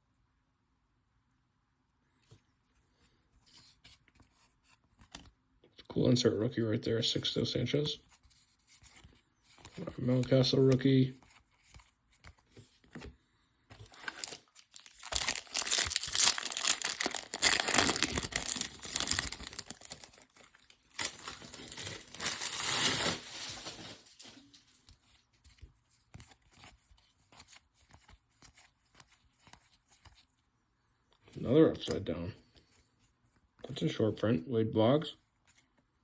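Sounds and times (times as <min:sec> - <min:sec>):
plastic wrapper crinkling: 0:13.8 - 0:24.8.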